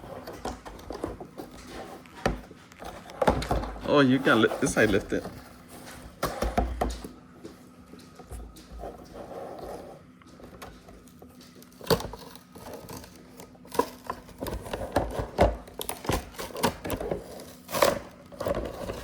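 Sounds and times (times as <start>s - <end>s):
plastic packaging clicks: 10.6s - 19.0s.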